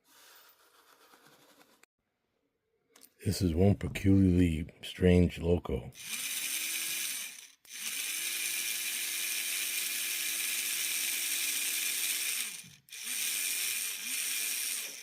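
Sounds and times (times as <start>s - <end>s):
model locomotive motor humming: 6.0s - 15.0s.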